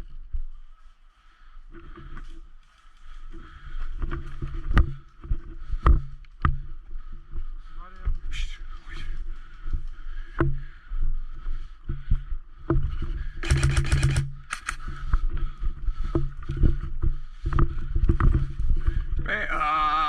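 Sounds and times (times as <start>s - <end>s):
rumble of movement: 1.6s - 19.5s
airsoft gun full-auto burst: 13.4s - 14.8s.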